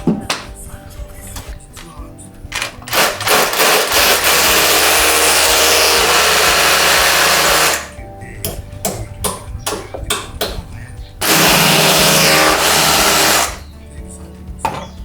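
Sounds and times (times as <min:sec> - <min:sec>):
power tool running: 0:02.5 - 0:08.0, 0:11.2 - 0:13.6.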